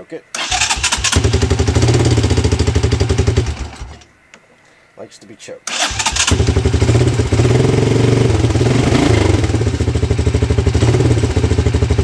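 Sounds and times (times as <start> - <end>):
atv engine running: 0.4 - 4.1, 5.7 - 12.0.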